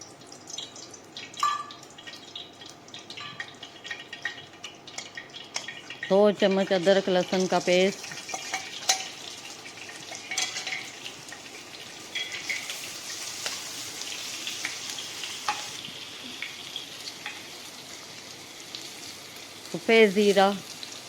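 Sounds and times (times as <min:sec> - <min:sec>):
paste sizzling in hot oil: 0:01.7 - 0:21.0
spoon clicking against pan: 0:08.2 - 0:09.1, 0:10.1 - 0:10.9, 0:15.4 - 0:15.7.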